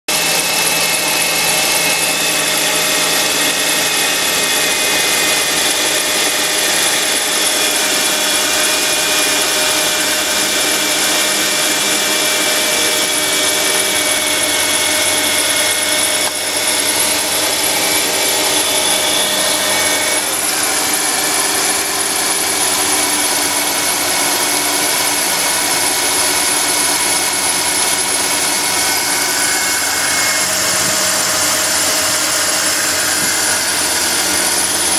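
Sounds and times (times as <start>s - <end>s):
steady whining tones: 0.1s - 34.9s.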